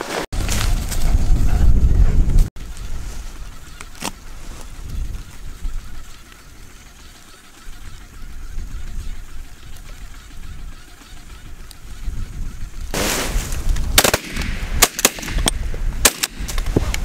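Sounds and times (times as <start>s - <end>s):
wind buffeting microphone: 0.4s - 6.2s, 7.7s - 17.0s
sharp crack: 12.9s - 17.0s.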